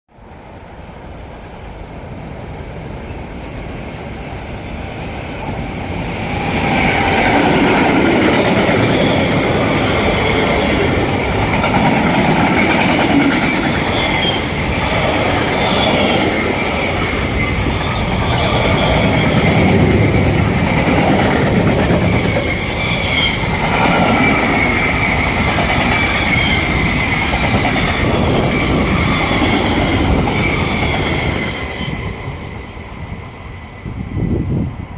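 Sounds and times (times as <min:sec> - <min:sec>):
train wheels rumbling on rail: 0:00.2 - 0:34.9
high-pitched wheel squeal: 0:13.4 - 0:20.3, 0:22.0 - 0:34.5.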